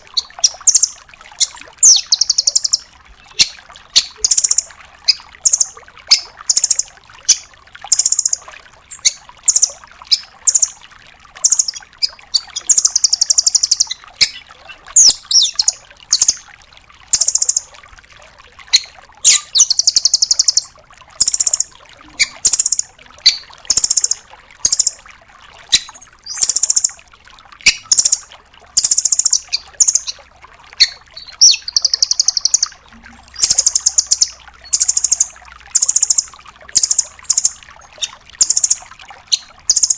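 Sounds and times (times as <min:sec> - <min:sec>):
bird trilling high notes: 0:30.8 - 0:38.8.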